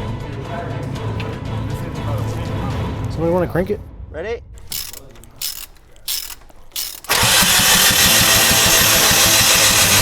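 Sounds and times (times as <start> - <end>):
engine cranking on starter: 4.6 - 10.0.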